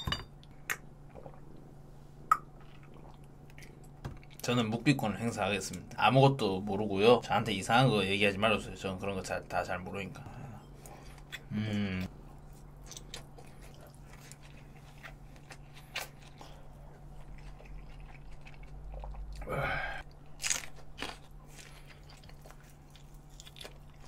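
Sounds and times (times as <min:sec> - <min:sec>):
person chewing and biting meat: 0:12.5 - 0:24.0.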